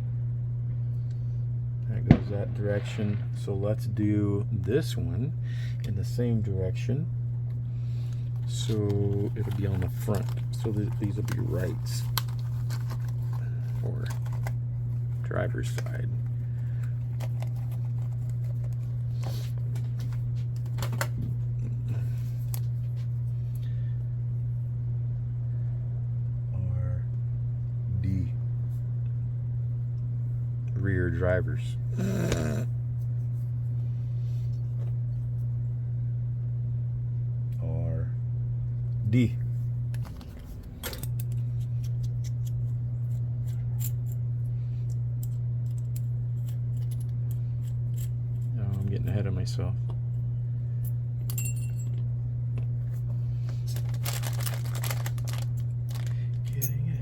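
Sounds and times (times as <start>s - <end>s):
steady low hum: 0.0s - 57.0s
plastic parts clicking and rustling: 8.5s - 14.6s, 17.0s - 18.9s, 53.5s - 56.7s.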